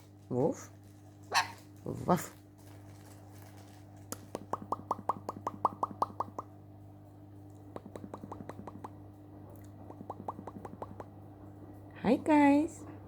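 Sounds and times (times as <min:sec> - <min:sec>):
parrot popping clicks: 0:04.1 - 0:06.5.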